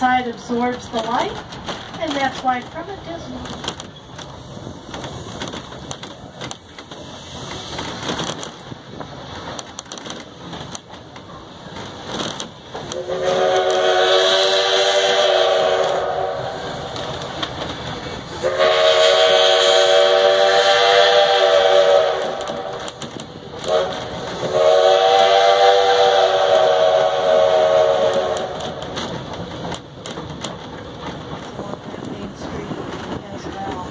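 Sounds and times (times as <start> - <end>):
train rattling on track: 0.0 - 33.9
steam locomotive chime whistle: 13.0 - 16.5, 18.4 - 22.6, 23.7 - 28.5.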